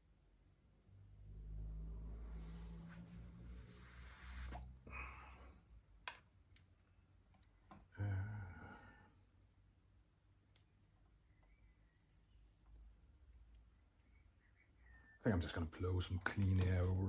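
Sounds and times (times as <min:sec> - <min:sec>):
spray hissing: 0:02.9 - 0:04.6.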